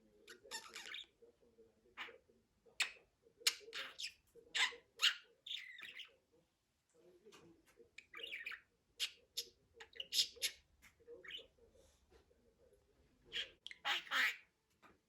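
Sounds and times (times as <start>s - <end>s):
budgerigar chirping and warbling: 0.2s - 1.2s, 2.8s - 6.2s, 8.0s - 10.6s, 11.2s - 11.5s, 13.3s - 14.5s.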